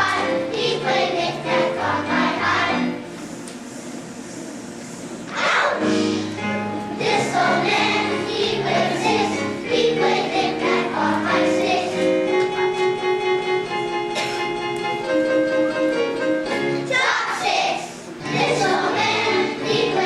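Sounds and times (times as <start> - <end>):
children's choir singing: 0.0 - 3.0, 5.3 - 12.6, 16.8 - 20.0
instrumental accompaniment: 5.8 - 17.2.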